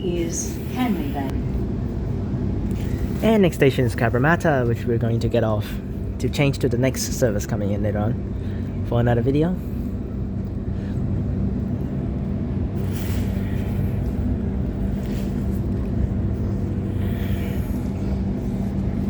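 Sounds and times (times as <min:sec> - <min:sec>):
low electric hum: 0:00.0 - 0:19.0.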